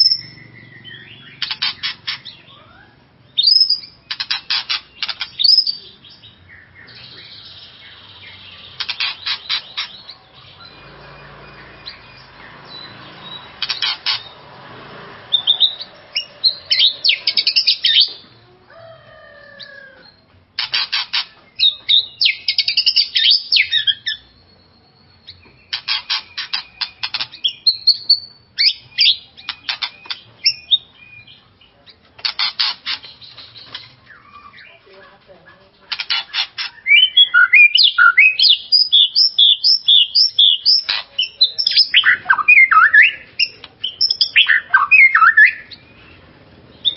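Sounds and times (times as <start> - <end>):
bird singing rattles and whistles: 0.0 - 2.5, 3.4 - 5.9, 8.3 - 14.5, 20.1 - 31.4, 35.9 - 46.2.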